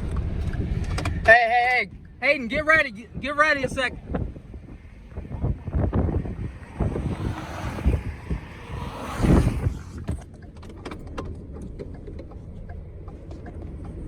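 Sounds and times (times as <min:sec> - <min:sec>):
wind buffeting microphone: 0:03.2 - 0:11.5.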